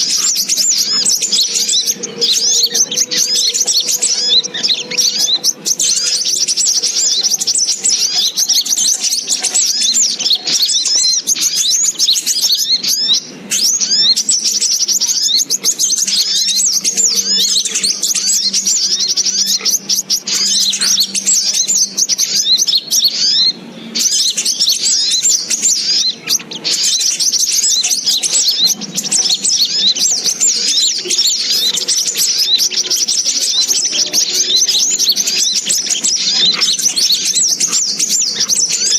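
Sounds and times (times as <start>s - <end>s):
bird rapid chattering chirps: 0.0s - 38.9s.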